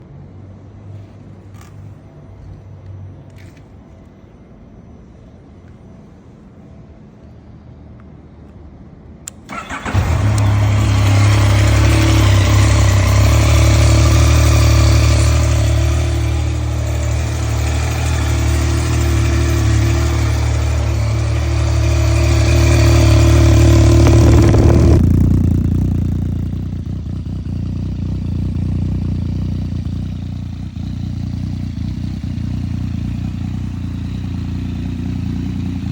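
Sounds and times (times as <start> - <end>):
motorcycle engine starting and idling: 9.3 - 35.9.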